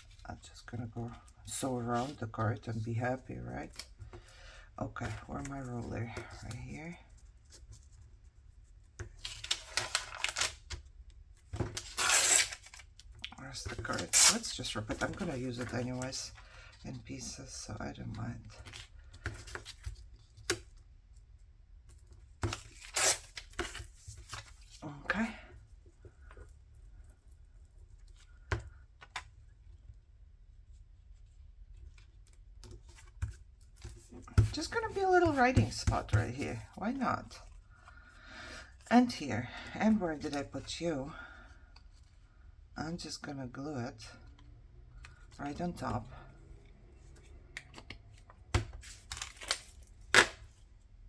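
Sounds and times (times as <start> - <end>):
paper rustling: 5.0 - 17.3.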